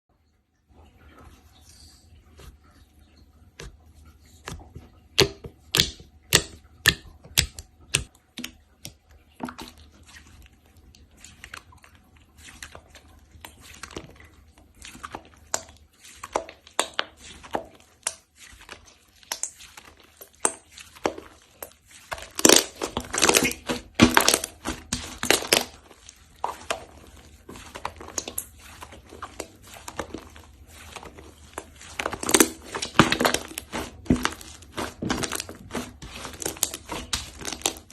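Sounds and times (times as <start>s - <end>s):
slime squished by hand: 11.1s - 37.9s.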